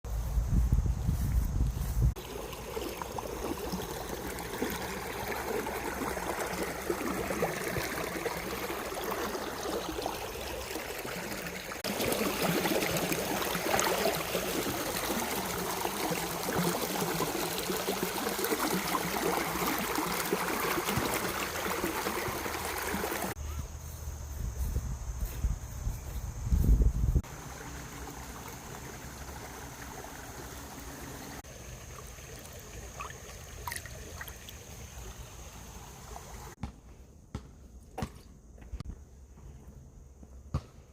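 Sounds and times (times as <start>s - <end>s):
stream running: 1.1s - 23.4s, 26.5s - 36.6s.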